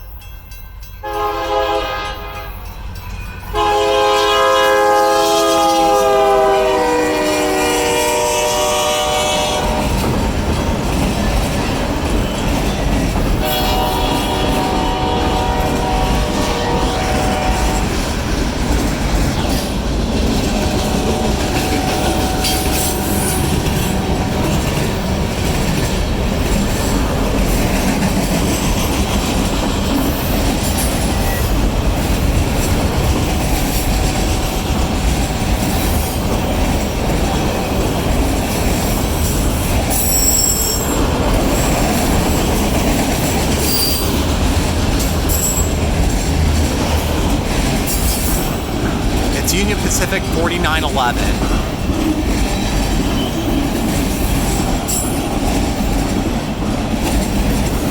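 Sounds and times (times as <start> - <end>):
train wheels rumbling on rail: 1.2 - 57.9.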